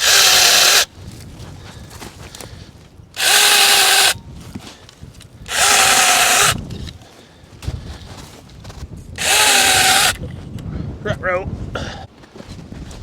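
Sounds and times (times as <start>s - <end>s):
mini chainsaw cutting wood: 0.0s - 0.9s, 3.2s - 4.2s, 5.5s - 6.6s, 9.2s - 10.2s.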